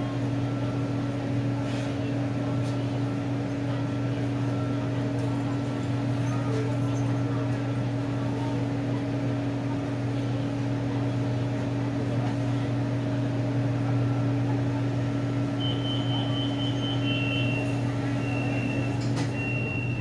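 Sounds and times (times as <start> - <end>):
train car low hum: 0.0 - 20.0
pulsing electronic beep: 15.6 - 20.0.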